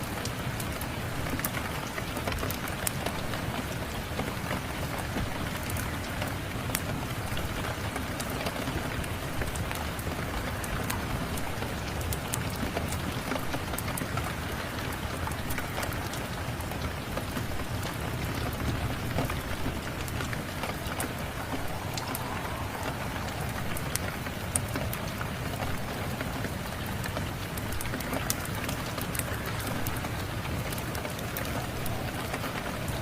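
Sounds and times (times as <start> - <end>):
steady rain: 0.0 - 33.0
wood fire crackling: 9.0 - 33.0.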